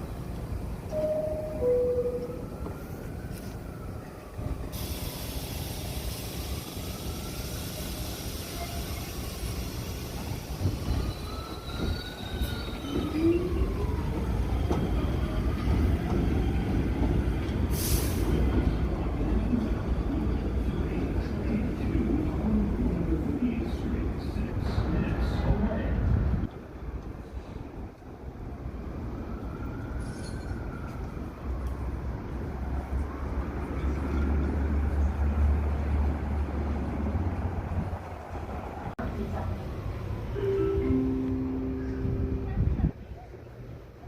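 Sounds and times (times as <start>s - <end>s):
subway train rumbling: 0.0s - 44.0s
air hiss: 4.8s - 10.6s.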